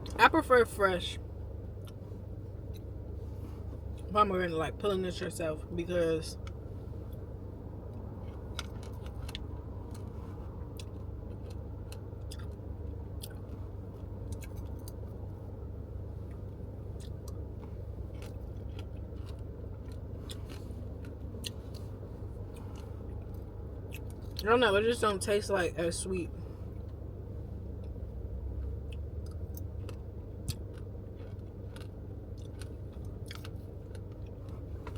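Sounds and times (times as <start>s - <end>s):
car cabin rumble: 0.0s - 34.9s
chewing crunchy seeds: 6.4s - 15.3s, 16.2s - 24.4s, 27.8s - 34.9s.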